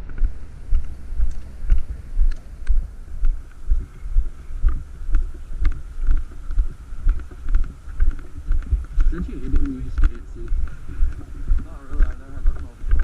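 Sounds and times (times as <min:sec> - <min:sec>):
footsteps walking: 0:00.0 - 0:13.0.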